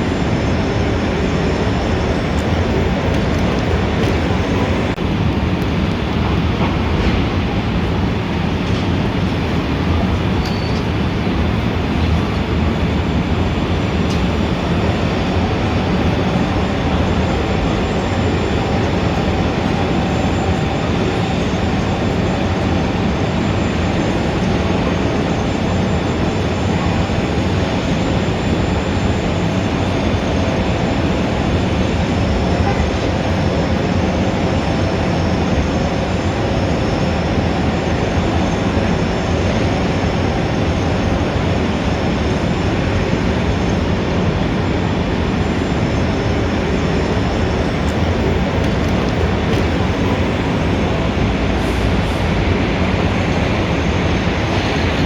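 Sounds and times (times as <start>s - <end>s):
city traffic: 0.0s - 55.0s.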